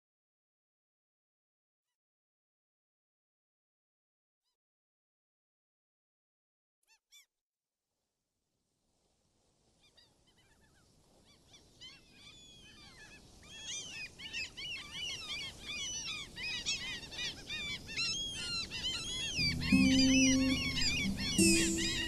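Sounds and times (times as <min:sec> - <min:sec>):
many birds chirping: 0:11.3 - 0:22.0.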